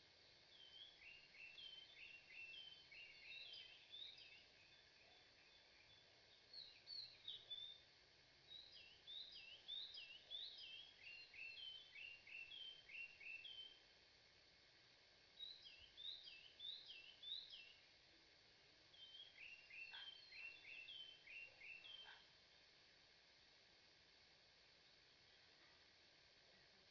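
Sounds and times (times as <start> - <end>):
faint bird chirps: 0.2 - 13.9, 15.3 - 17.9, 18.8 - 22.5.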